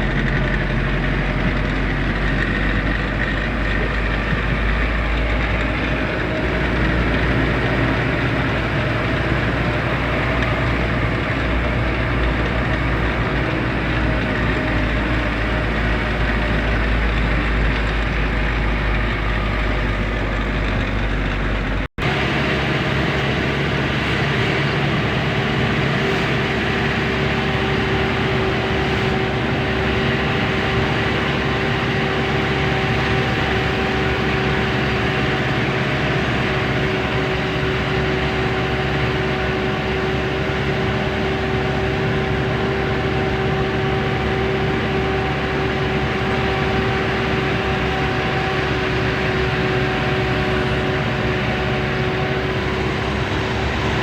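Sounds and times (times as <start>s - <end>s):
truck engine and road noise: 0.0s - 54.0s
whining hum: 37.6s - 54.0s.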